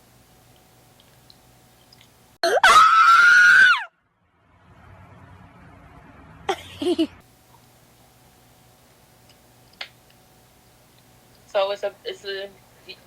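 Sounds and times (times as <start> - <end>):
person screaming: 2.4 - 3.9.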